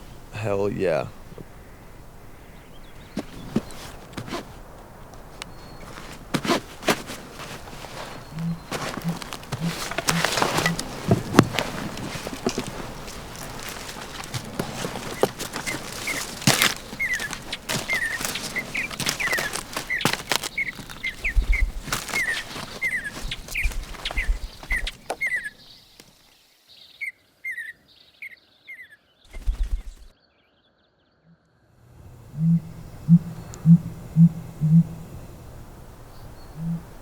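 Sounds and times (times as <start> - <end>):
bird chirping: 0.0 - 26.2, 32.2 - 37.0
low thumps: 2.9 - 25.2
clicking rustling and scraping: 2.9 - 26.1.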